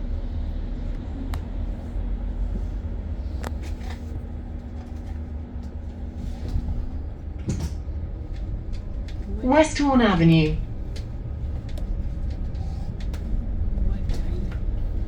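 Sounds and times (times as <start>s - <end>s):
bus road rumble: 0.0s - 15.0s
constant hum: 0.0s - 15.0s
light clicks and rattles: 10.9s - 15.0s.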